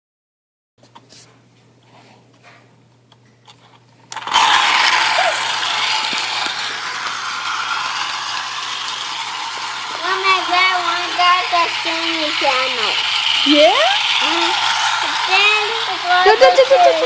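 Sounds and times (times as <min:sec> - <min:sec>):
toy train motor clattering: 0:04.1 - 0:17.0.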